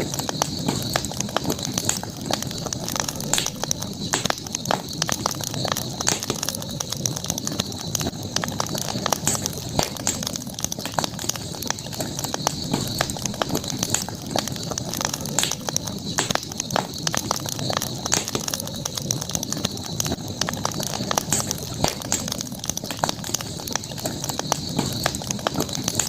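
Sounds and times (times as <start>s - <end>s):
campfire crackling and popping: 0.0s - 26.0s
steady high hiss: 0.0s - 26.0s.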